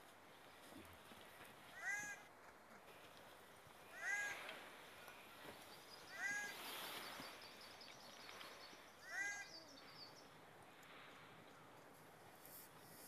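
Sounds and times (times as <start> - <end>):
bird calling: 3.8 - 10.4.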